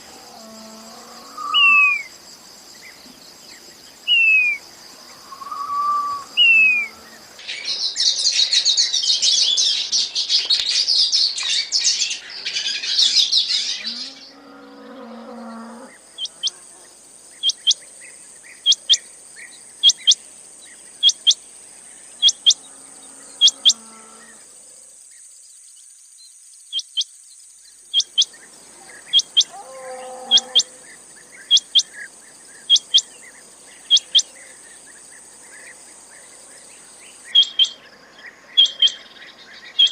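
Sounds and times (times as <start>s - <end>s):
quail chirping and calling: 5.3s - 6.9s, 22.2s - 22.6s, 23.4s - 23.8s, 29.0s - 30.8s, 31.4s - 32.0s, 32.7s - 33.1s, 33.9s - 34.3s, 37.3s - 37.8s, 38.6s - 39.0s.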